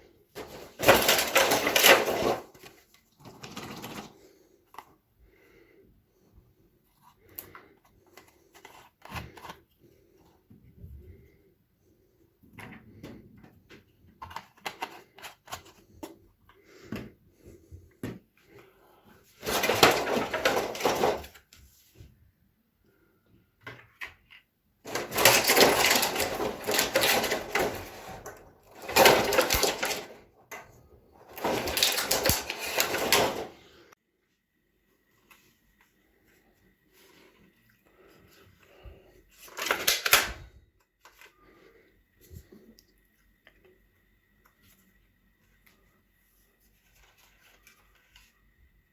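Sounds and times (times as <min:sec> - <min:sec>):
packaging clicks and knocks: 0:00.4 - 0:02.7, 0:19.4 - 0:21.4, 0:24.9 - 0:30.7, 0:31.3 - 0:33.6, 0:39.5 - 0:40.4
packaging rustling and crinkling: 0:00.4 - 0:04.8, 0:19.4 - 0:21.5, 0:24.9 - 0:30.4, 0:31.2 - 0:33.9.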